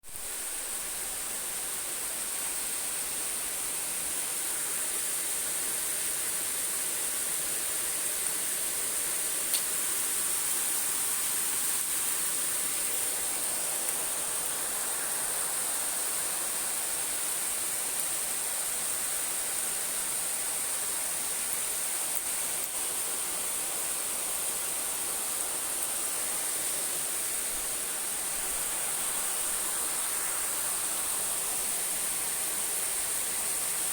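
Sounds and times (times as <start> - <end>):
steady rain: 0.0 - 33.9.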